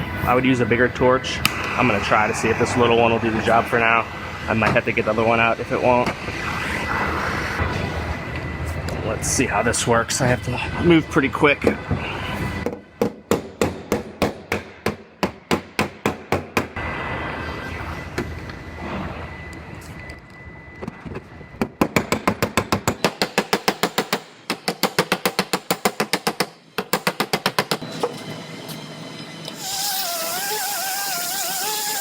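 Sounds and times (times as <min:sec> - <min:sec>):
torch hissing: 0:29.5 - 0:32.0.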